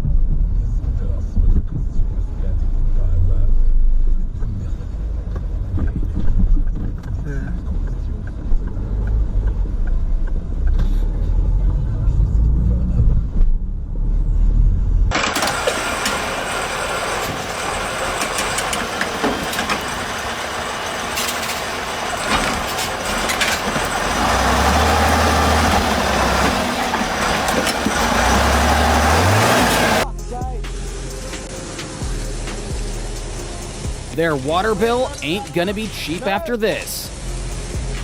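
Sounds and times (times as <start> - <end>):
heavy low engine rumble: 0.0 - 38.0
low engine hum: 0.0 - 38.0
road and wind noise hiss: 15.2 - 38.0.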